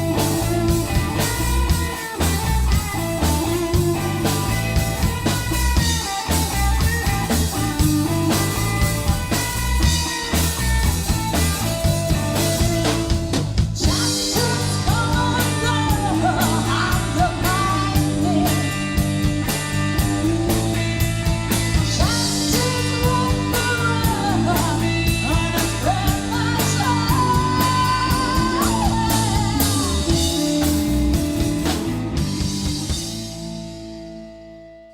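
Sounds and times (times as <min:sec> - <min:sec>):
rock blues band playing: 0:00.0 - 0:34.9
woman singing: 0:13.8 - 0:19.0, 0:21.8 - 0:31.0.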